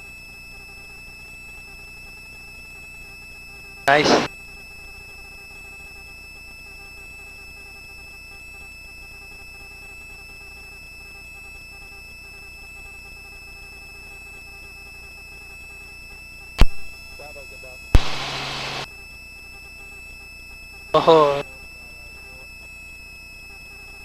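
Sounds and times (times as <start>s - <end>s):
sharp click: 16.6s - 16.9s.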